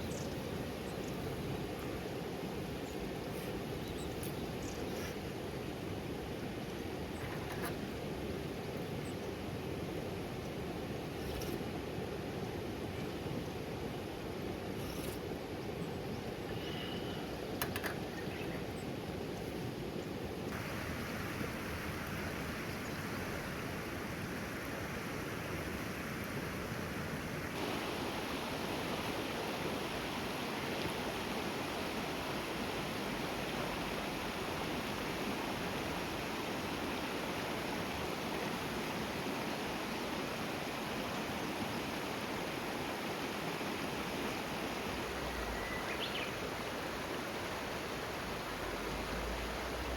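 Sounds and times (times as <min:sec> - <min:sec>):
river water flowing: 0:00.0 - 0:49.9
rain hissing: 0:20.5 - 0:23.5, 0:27.6 - 0:31.0.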